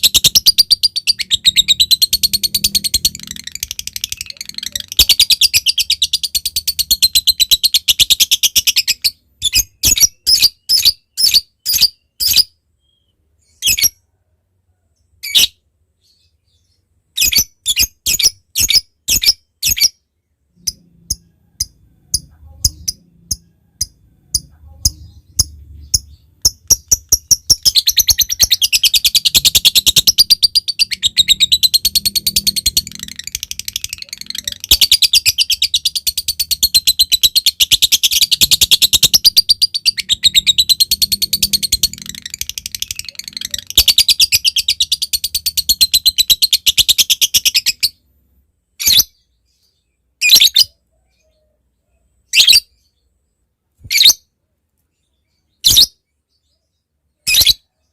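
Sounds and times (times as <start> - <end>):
lovebird chattering and calling: 0.0 - 14.0, 20.6 - 48.1.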